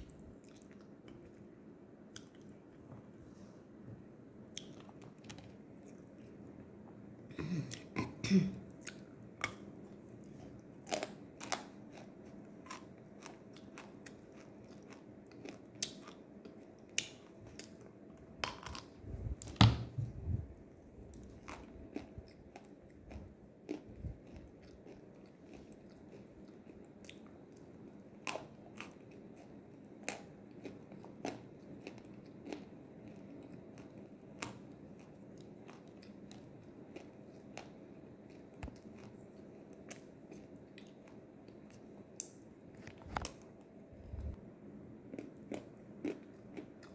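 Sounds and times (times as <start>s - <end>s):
person chewing crunchy clay: 8.8s - 19.0s, 21.1s - 27.6s, 28.2s - 43.4s, 45.1s - 46.9s.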